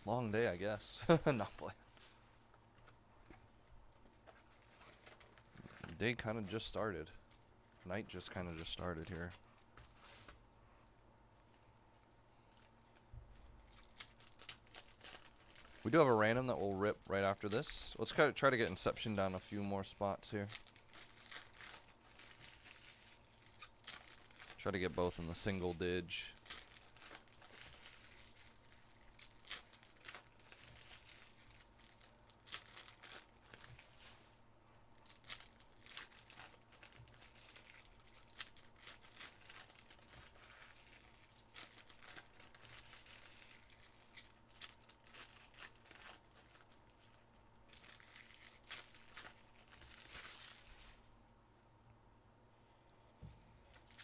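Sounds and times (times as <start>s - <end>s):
card pack wrappers crinkling and tearing: 7.8s - 9.4s, 12.5s - 34.4s, 35.0s - 51.0s, 53.7s - 54.0s.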